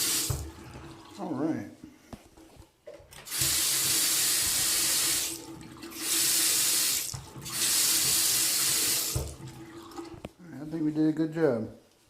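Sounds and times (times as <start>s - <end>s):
faucet running into sink: 0.0s - 1.2s, 3.1s - 10.3s.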